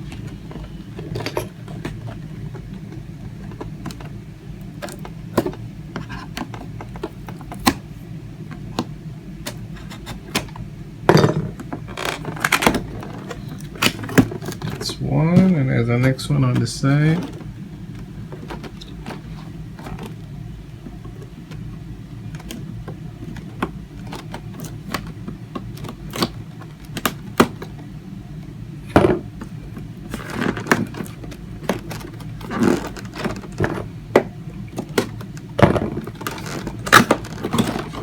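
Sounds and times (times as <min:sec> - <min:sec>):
plastic and cardboard rustling: 0:00.0 - 0:10.6, 0:11.2 - 0:28.0, 0:29.0 - 0:38.0
steady low hum: 0:00.0 - 0:38.0.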